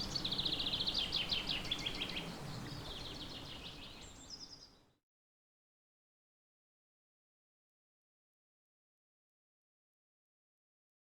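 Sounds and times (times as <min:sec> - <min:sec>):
birds singing: 0:00.0 - 0:04.9
faint background hiss: 0:00.0 - 0:05.0.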